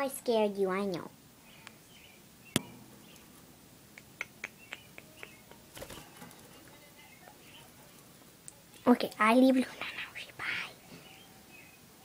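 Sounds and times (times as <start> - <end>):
budgerigar chirping: 4.0 - 5.5.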